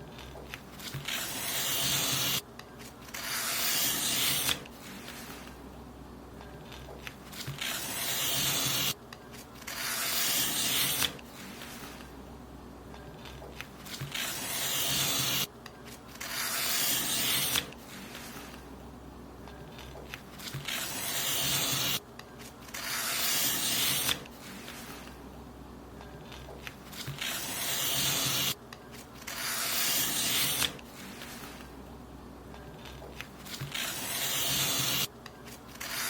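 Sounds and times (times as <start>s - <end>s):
paper being cut: 0.2s - 5.5s, 6.7s - 9.0s, 9.6s - 12.1s, 13.2s - 15.5s, 16.1s - 18.6s, 19.8s - 22.0s, 22.7s - 25.1s, 26.3s - 28.6s, 29.2s - 31.7s, 32.8s - 36.0s.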